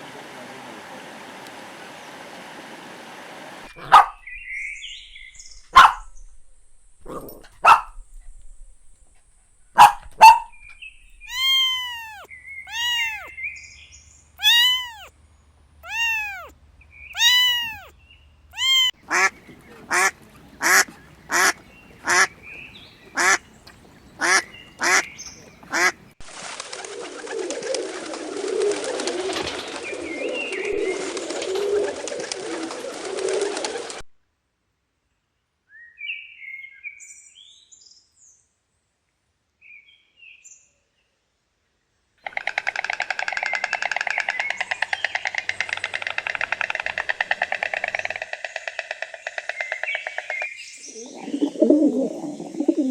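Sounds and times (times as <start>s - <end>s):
noisy animal chatter: 3.7s - 4.2s, 18.6s - 26.2s, 42.3s - 52.9s
animal calls: 3.7s - 6.4s, 7.0s - 13.3s, 14.4s - 15.1s, 15.8s - 16.5s, 17.2s - 17.9s, 18.6s - 26.2s, 42.2s - 52.9s.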